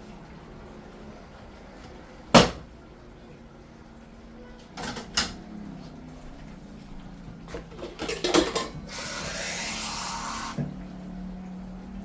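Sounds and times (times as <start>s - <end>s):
pots and utensils clattering: 4.8s - 5.4s, 7.5s - 9.8s.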